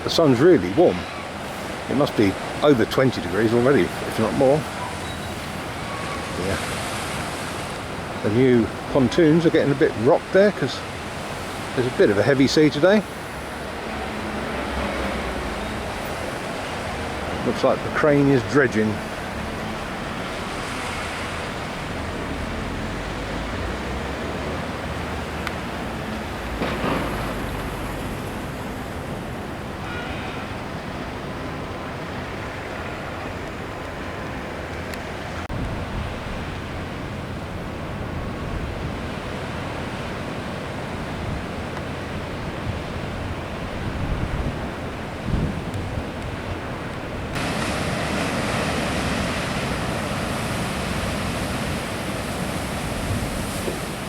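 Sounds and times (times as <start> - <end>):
sea surf washing: 0.0 - 54.0
wind on microphone: 41.1 - 54.0.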